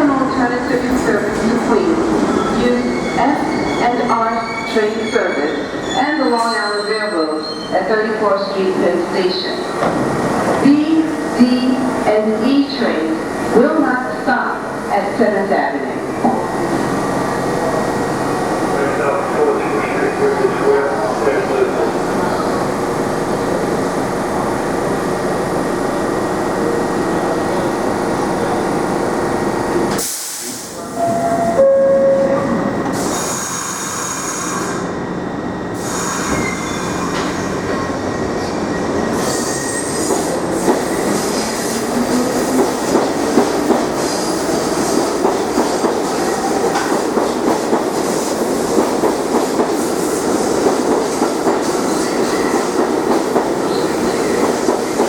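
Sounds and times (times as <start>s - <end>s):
subway train rumbling: 0.0s - 55.0s
wheel squeal: 35.8s - 37.9s.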